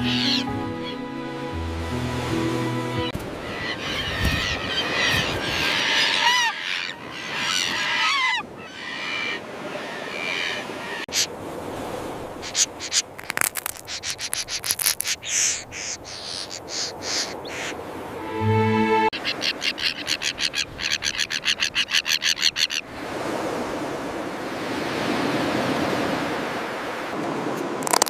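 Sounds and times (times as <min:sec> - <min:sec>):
terns calling harshly: 0:00.0 - 0:01.0, 0:03.4 - 0:11.3, 0:12.4 - 0:17.8, 0:19.2 - 0:22.8.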